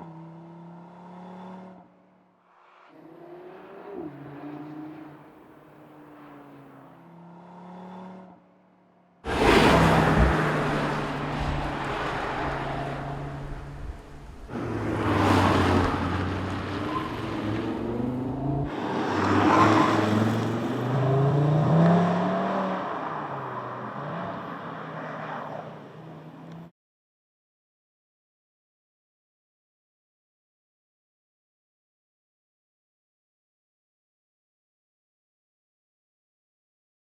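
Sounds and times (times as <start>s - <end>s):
car engine accelerating past: 9.3s - 25.3s.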